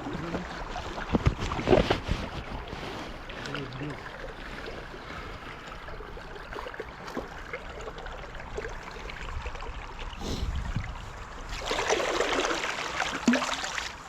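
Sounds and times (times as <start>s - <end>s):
small splashes: 10.8s - 14.0s.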